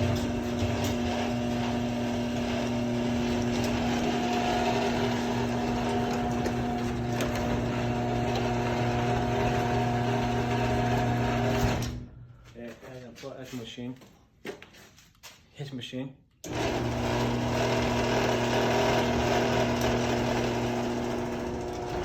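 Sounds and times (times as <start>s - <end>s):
electric motor humming: 0.0s - 12.0s, 16.5s - 22.0s.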